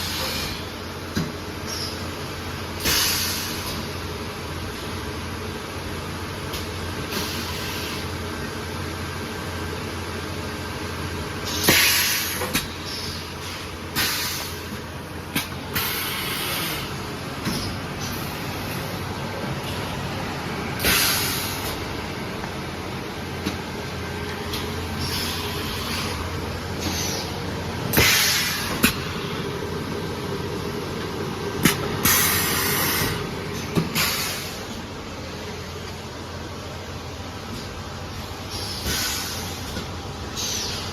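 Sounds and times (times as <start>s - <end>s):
pneumatic air hiss: 0.0s - 0.7s, 2.8s - 3.9s, 7.1s - 8.1s, 11.4s - 14.8s, 15.4s - 18.8s, 20.8s - 21.8s, 24.5s - 29.3s, 31.6s - 34.8s, 38.4s - 40.9s
welding machine electrical hum: 0.0s - 40.9s
air hiss bursts: 2.8s - 3.8s, 11.5s - 12.6s, 13.9s - 14.7s, 15.7s - 17.0s, 20.8s - 21.8s, 27.9s - 29.0s, 31.6s - 33.3s, 33.9s - 34.7s, 38.5s - 39.7s.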